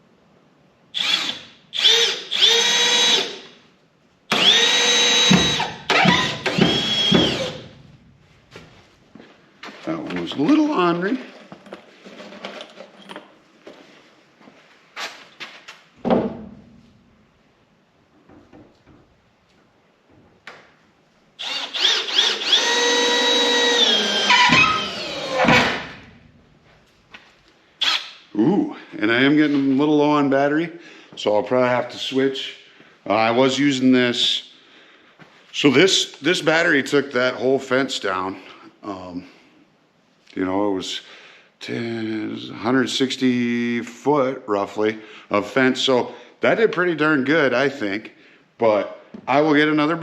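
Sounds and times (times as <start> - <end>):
cordless drill whining: 1.0 - 3.4, 4.3 - 7.7, 21.4 - 25.9, 27.8 - 28.1.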